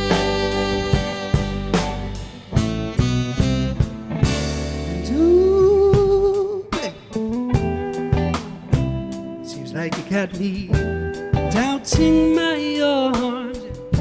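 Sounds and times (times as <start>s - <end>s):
drum hits: 0.0s - 4.9s
held vibrato note sliding up: 0.0s - 5.2s
live band playing: 0.0s - 14.0s.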